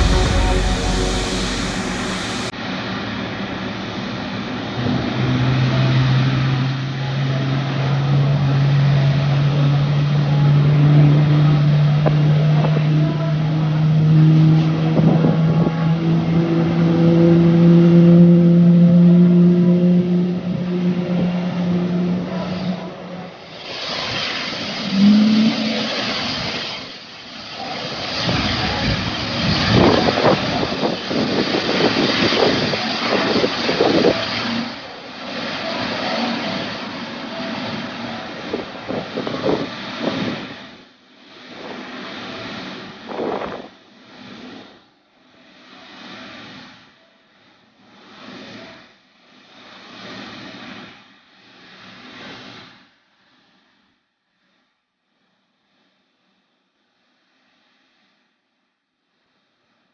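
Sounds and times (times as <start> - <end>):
steady engine hum: 0.0 - 2.5
jet engine roar: 0.0 - 2.8, 19.8 - 40.5.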